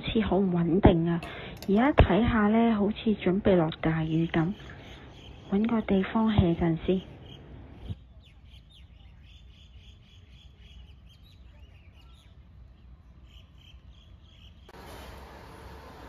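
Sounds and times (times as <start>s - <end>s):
birds chirping: 3.1s - 14.8s.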